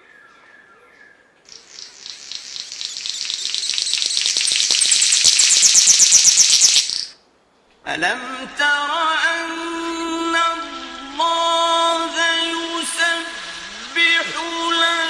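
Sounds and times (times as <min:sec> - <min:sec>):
faint bird chirps: 0:00.0 - 0:07.2
bird buzzing trill: 0:01.5 - 0:07.1, 0:10.3 - 0:14.8.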